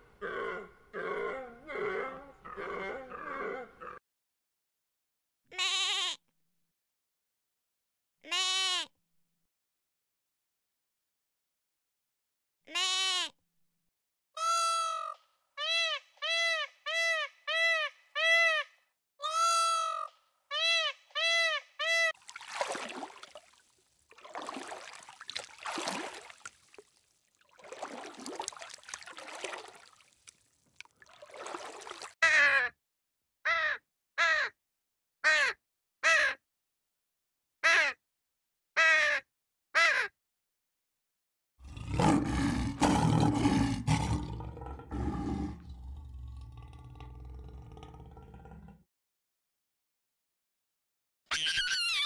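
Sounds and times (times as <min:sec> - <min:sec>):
bird calling: 0:51.3 - 0:52.0.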